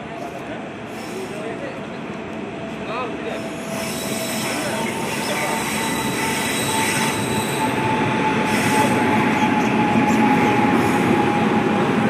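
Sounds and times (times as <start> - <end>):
train rumbling on rails: 0.0 - 12.0
high wheel squeal: 3.4 - 11.5.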